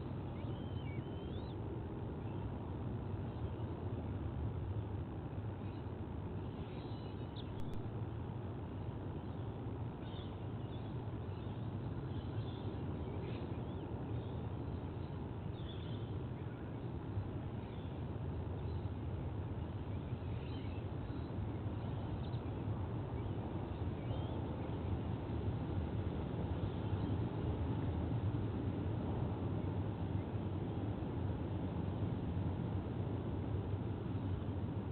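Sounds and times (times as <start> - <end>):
low outdoor rumble: 0.0 - 34.9
faint bird chirps: 0.3 - 1.6, 5.6 - 7.8, 10.0 - 16.8.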